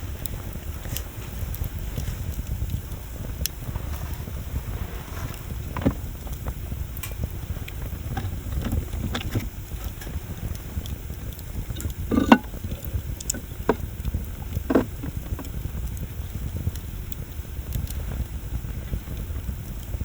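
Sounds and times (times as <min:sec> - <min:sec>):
bonfire crackling and popping: 0:00.0 - 0:20.0
low rumble of fire: 0:00.0 - 0:20.0.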